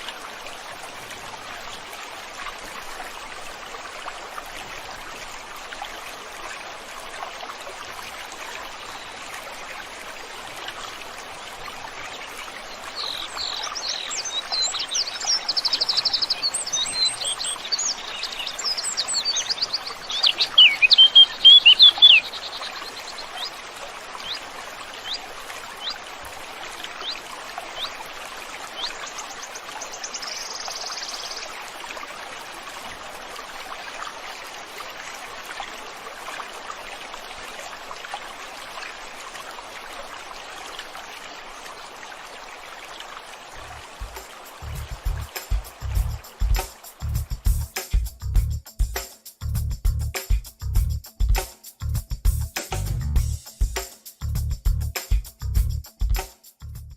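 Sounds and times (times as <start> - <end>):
stream flowing: 0.0 - 48.2
songbirds chirping and trilling: 12.2 - 26.2, 26.8 - 31.5.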